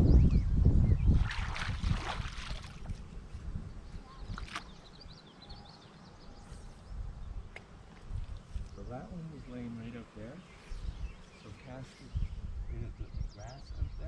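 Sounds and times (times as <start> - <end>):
wind rumble on microphone: 0.0 - 14.0
river water splashing: 1.2 - 3.2, 4.2 - 5.0
faint bird chirps: 3.6 - 7.5.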